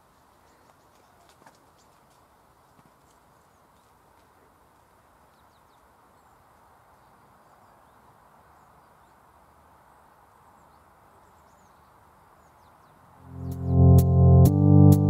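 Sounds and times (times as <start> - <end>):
faint outdoor hiss: 0.0 - 14.3
high bird chirps: 12.7 - 14.1.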